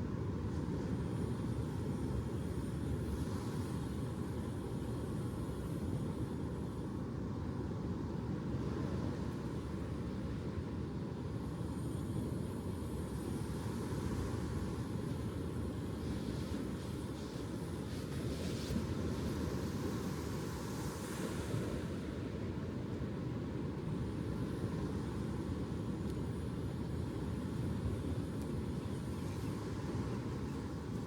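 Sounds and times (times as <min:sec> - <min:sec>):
low rumble of ocean surf: 0:00.0 - 0:31.0.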